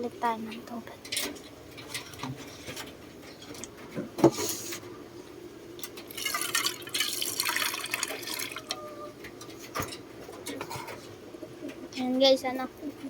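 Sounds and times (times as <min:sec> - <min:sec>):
water pouring and splashing: 0:06.1 - 0:08.8.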